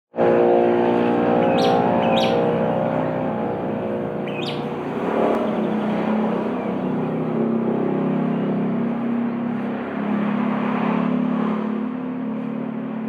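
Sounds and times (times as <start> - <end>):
steady droning hum: 0.8 - 7.4
lovebird chirping: 1.1 - 6.8.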